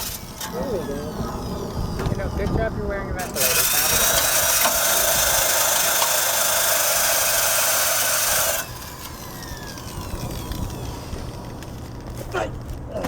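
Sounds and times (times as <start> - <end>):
drill whine spinning down: 0.0 - 12.2
wire brush scraping metal: 3.2 - 12.4.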